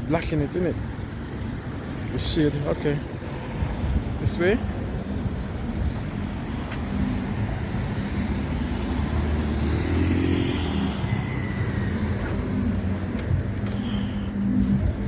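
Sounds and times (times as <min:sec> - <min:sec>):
low traffic rumble: 0:00.0 - 0:15.0
car driving past: 0:08.3 - 0:12.7.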